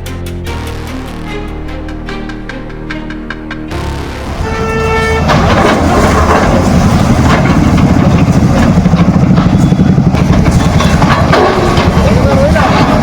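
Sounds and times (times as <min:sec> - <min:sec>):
bulldozer diesel engine: 0:03.7 - 0:13.0.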